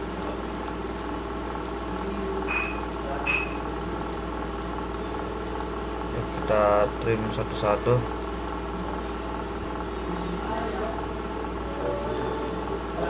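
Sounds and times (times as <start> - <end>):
background hum: 0.0 - 13.0
short high beeps: 2.5 - 3.6.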